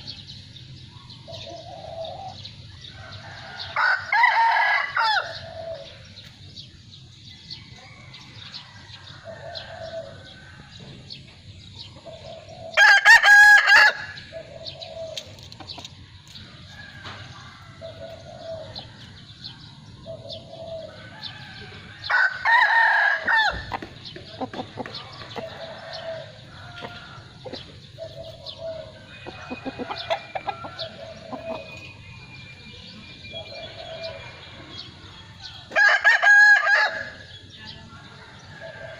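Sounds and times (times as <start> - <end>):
rooster crowing: 2.9 - 5.9, 20.8 - 23.7, 28.5 - 31.8, 35.4 - 37.3.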